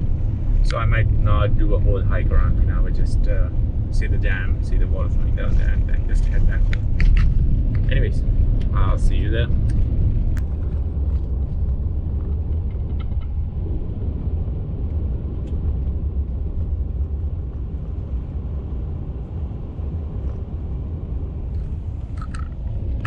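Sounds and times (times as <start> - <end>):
truck tyres and engine rumbling: 0.0 - 23.0
faint rattles: 21.5 - 23.0.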